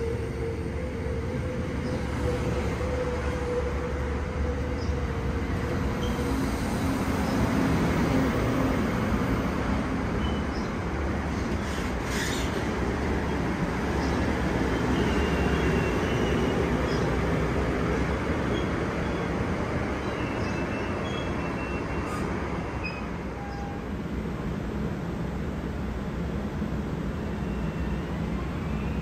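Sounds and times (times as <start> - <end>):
train rumbling past on rails: 0.0 - 29.0.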